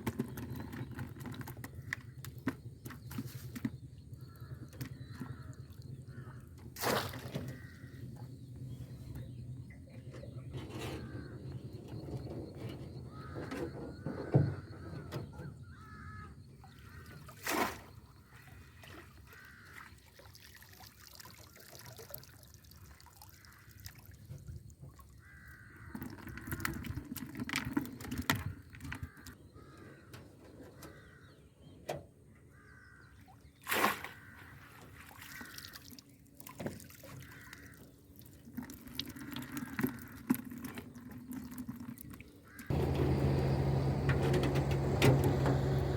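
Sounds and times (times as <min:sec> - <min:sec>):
water splashing and trickling: 0:00.0 - 0:07.7, 0:16.6 - 0:29.4, 0:33.3 - 0:45.9
crows cawing: 0:13.1 - 0:13.6, 0:15.7 - 0:16.3, 0:19.3 - 0:19.8, 0:25.2 - 0:26.6, 0:29.1 - 0:30.1, 0:37.2 - 0:37.8.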